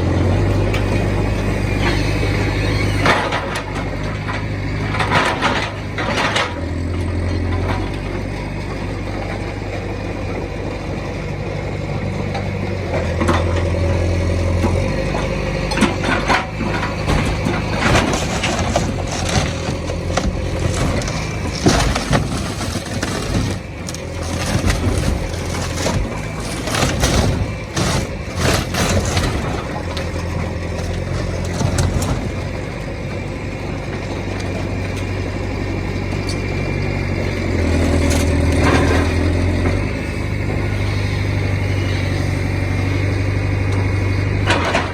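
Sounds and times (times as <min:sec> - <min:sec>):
heavy machine engine labouring: 0:00.0 - 0:44.9
hull cracking and crunching: 0:13.0 - 0:33.2, 0:37.4 - 0:40.8.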